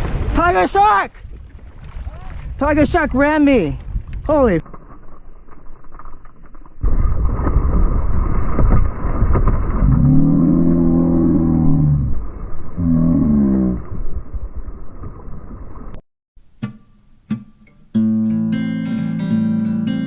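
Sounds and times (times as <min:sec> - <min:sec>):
muffled rushing and splashing: 0:00.0 - 0:04.6.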